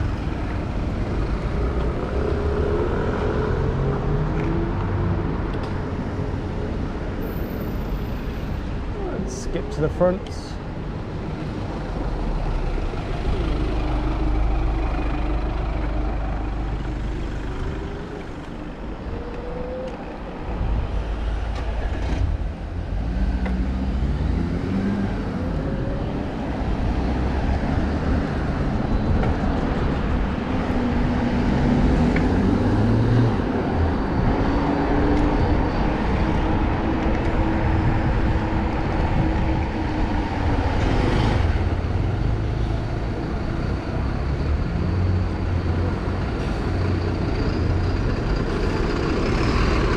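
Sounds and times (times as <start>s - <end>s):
low traffic rumble: 0.0s - 49.9s
vehicle engines pulling away: 11.5s - 49.9s.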